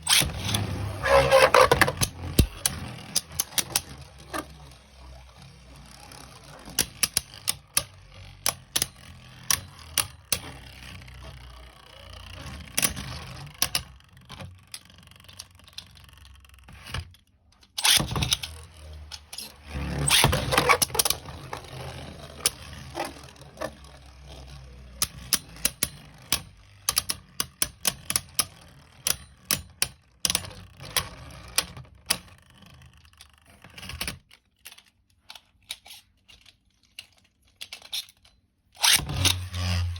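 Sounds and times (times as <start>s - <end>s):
rattling and scraping: 0.0s - 11.6s.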